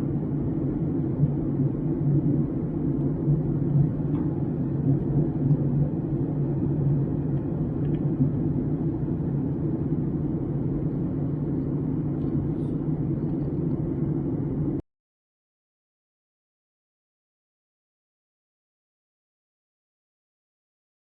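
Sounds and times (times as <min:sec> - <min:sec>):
faint thin whine: 0:00.0 - 0:14.8
jet engine cabin rumble: 0:00.0 - 0:14.8.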